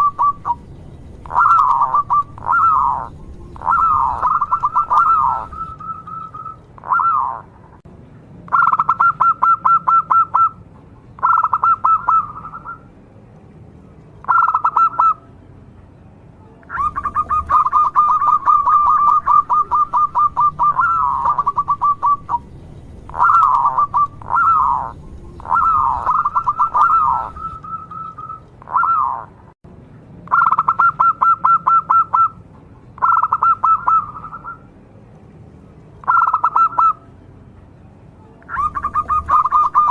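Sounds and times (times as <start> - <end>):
dove cooing: 0.0 - 7.6, 8.5 - 10.6, 11.2 - 12.8, 14.2 - 15.2, 16.7 - 22.5, 23.1 - 29.3, 33.0 - 34.6, 36.0 - 37.0, 38.5 - 39.9.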